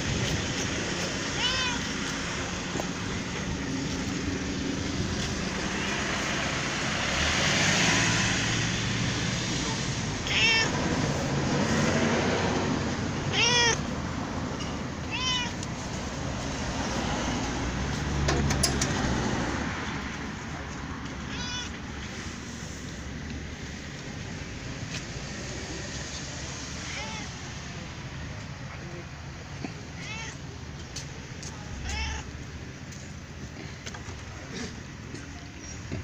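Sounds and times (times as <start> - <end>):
cat meowing: 1.3 - 1.9, 10.2 - 10.8, 13.3 - 13.9, 15.0 - 15.7, 21.2 - 21.8, 26.8 - 27.4, 29.9 - 30.5, 31.8 - 32.3.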